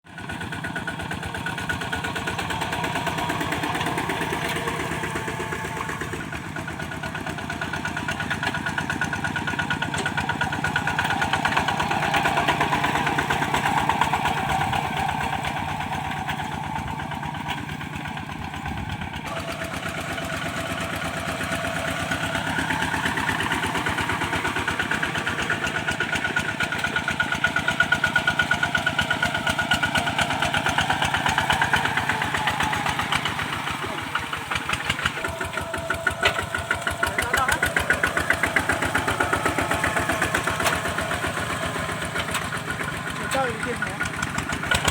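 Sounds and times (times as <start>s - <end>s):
diesel engine running under load: 0.0s - 44.9s.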